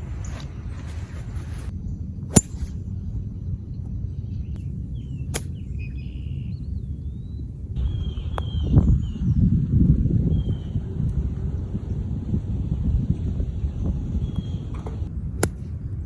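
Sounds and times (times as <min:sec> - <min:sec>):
low rumble: 0:00.0 - 0:16.0
golf club striking ball: 0:02.3 - 0:03.0.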